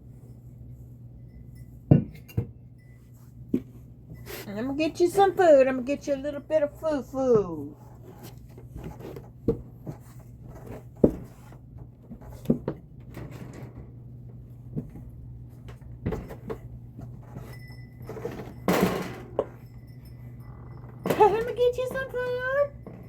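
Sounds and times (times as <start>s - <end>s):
steady low hum: 0.0s - 23.0s
household knocks and clunks: 1.9s - 2.6s, 8.0s - 14.0s, 14.6s - 19.7s.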